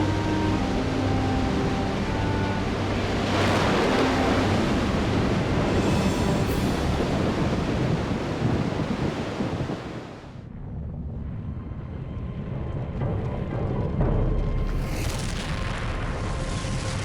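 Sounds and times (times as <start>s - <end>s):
loud rushing noise: 1.8s - 10.4s.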